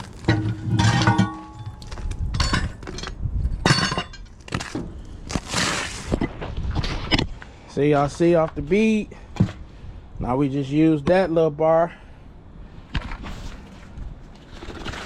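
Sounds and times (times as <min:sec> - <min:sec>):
metal clanks of tire tools: 0:00.2 - 0:05.0.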